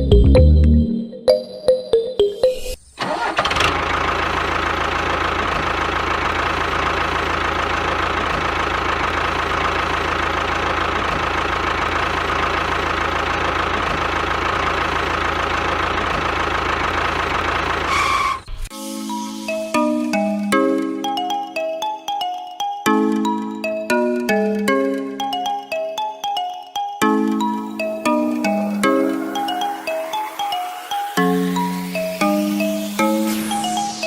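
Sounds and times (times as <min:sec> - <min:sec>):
small tractor engine running: 0:03.0 - 0:18.5.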